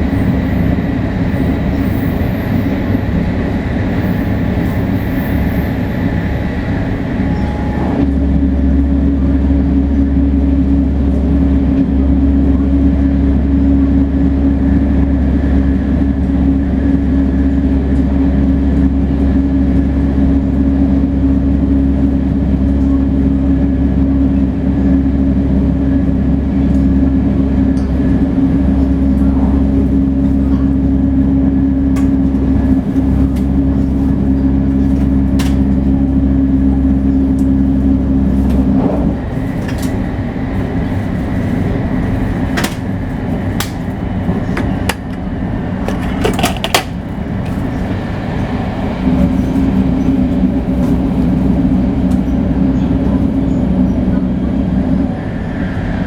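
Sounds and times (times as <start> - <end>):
train running at speed: 0.0 - 56.0.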